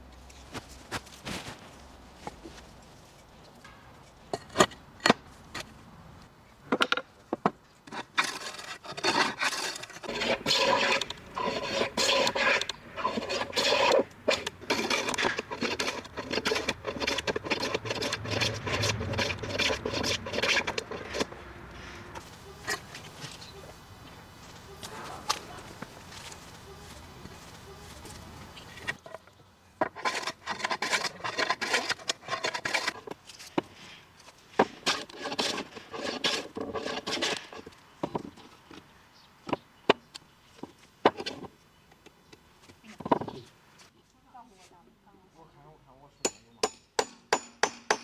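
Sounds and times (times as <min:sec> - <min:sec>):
hand tool scraping wood: 0:07.9 - 0:23.7, 0:24.8 - 0:29.0, 0:29.8 - 0:33.9, 0:34.6 - 0:37.8.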